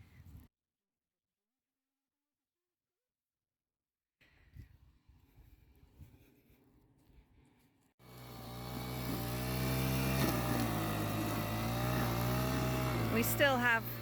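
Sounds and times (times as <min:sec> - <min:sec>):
lawn mower engine running: 0:08.0 - 0:14.0.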